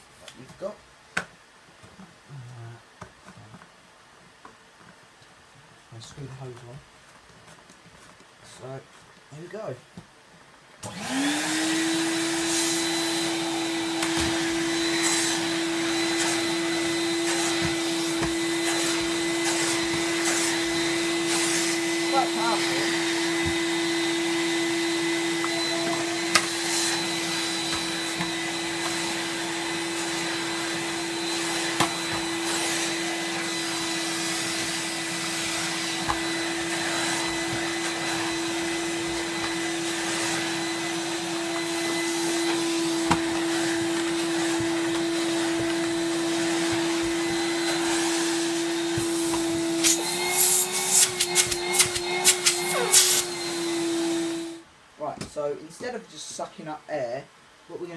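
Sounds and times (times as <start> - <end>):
vacuum cleaner running: 10.8 - 54.7.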